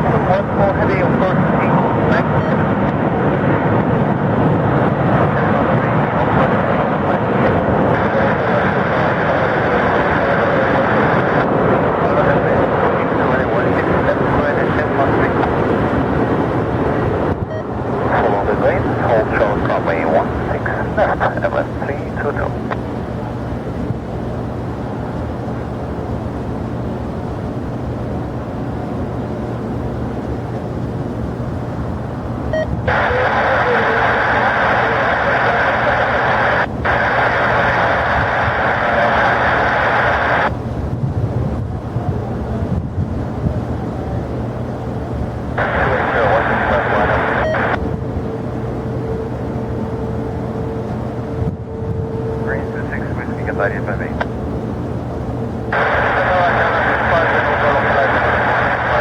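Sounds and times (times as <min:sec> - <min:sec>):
radio static: 0:00.0 - 0:02.7, 0:05.2 - 0:22.9, 0:32.5 - 0:40.5, 0:45.6 - 0:47.9, 0:52.4 - 0:59.0
faint steady whine: 0:00.0 - 0:59.0
jet engine rushing: 0:00.0 - 0:59.0.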